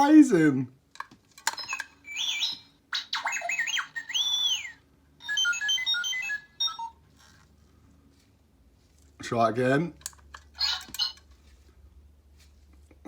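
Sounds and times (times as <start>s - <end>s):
toy click: 1.0s - 4.7s, 10.0s - 11.2s
robot beeps and whistles: 1.6s - 7.0s.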